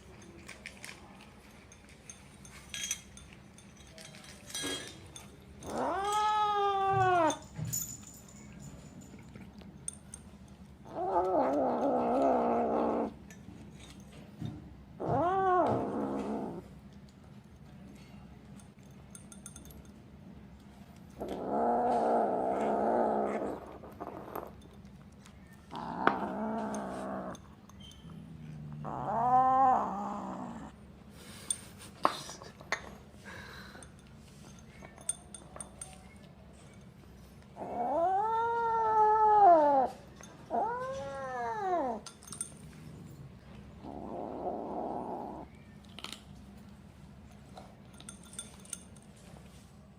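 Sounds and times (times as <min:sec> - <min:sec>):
kitten growling: 0:05.6 - 0:07.4, 0:10.8 - 0:13.2, 0:15.0 - 0:16.7, 0:21.2 - 0:24.6, 0:25.7 - 0:27.5, 0:28.1 - 0:30.8, 0:37.6 - 0:42.1, 0:43.8 - 0:45.6.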